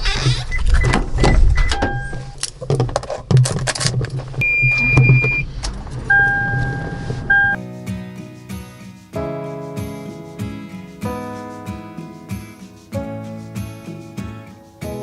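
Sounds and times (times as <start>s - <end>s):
sharp clicks and rattles: 0.0s - 7.2s
electronic beeps: 4.4s - 5.5s, 6.1s - 7.6s.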